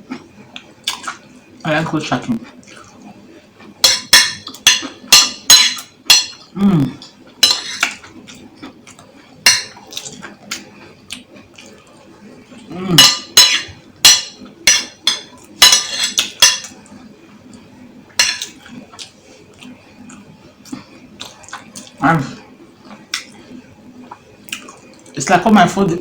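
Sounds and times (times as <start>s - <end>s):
spoon scraping a bowl: 7.4s - 8.0s, 13.0s - 16.7s.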